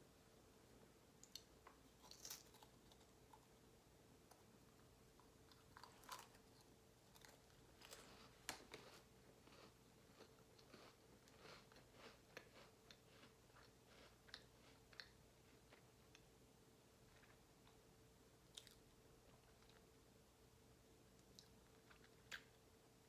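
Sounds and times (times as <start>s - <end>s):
chewing crunchy crackers: 1.2s - 3.5s, 5.2s - 16.2s.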